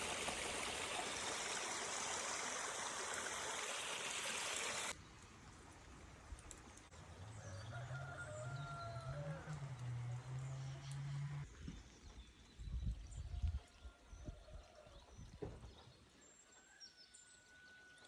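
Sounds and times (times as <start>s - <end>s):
stream flowing: 0.0s - 5.0s.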